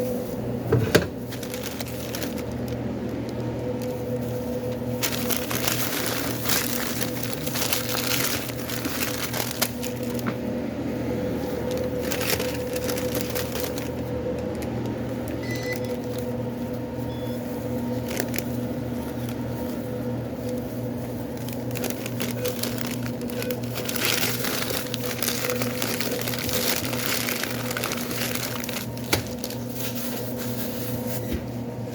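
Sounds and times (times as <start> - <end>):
electrical hum: 0.0 - 31.9
food wrappers crinkling: 1.1 - 10.4, 11.2 - 31.2.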